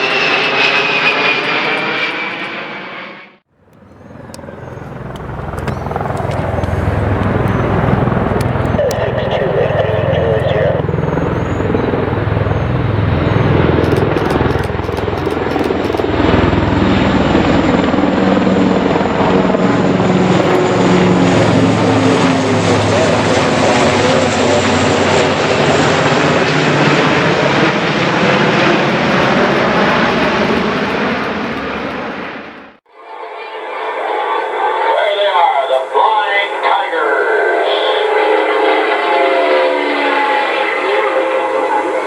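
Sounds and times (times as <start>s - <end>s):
aircraft engines roaring: 0.0s - 42.0s
low steady hum: 3.5s - 17.3s.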